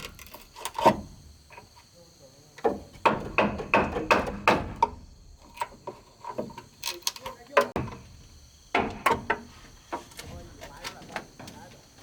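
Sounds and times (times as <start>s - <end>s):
hand tool chopping wood: 2.7s - 5.0s.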